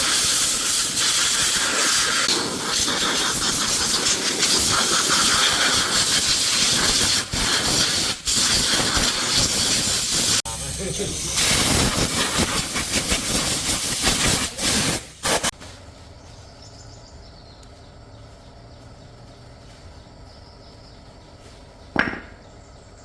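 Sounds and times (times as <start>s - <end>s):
pressurised jet hissing: 0.0s - 15.5s.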